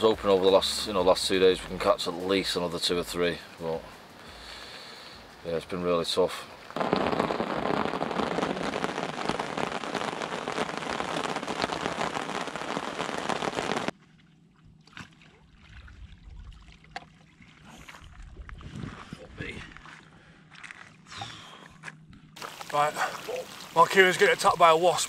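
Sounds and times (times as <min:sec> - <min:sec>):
heavy rain pelting down: 0:06.8 - 0:13.9, 0:22.4 - 0:25.0.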